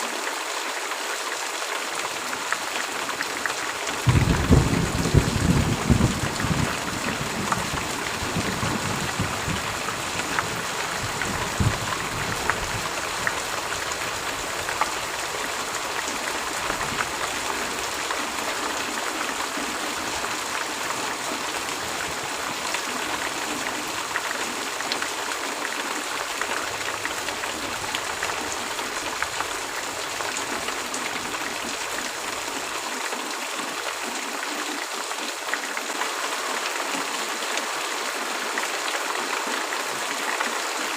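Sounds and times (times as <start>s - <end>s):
heavy rain: 0.0s - 40.9s
thunder rumble: 4.0s - 18.0s.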